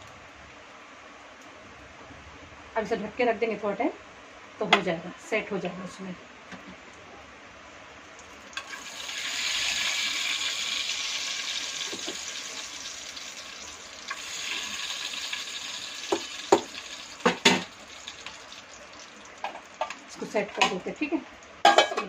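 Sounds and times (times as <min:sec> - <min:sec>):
food sizzling in a pan: 0:08.2 - 0:22.0
ladle knocking on metal pots: 0:21.6 - 0:22.0.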